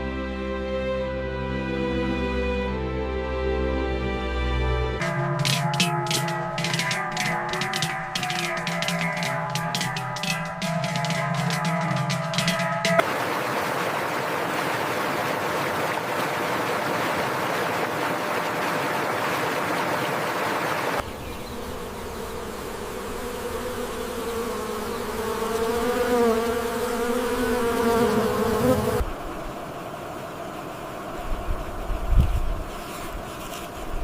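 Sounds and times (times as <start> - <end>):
insects humming: 5.0 - 34.0
close insect buzz wavering in pitch: 21.0 - 33.7.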